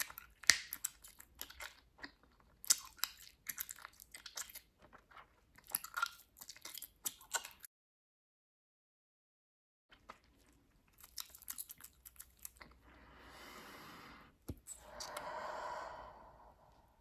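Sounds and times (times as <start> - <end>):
bubblegum chewing and popping: 0.0 - 7.7, 9.9 - 12.9.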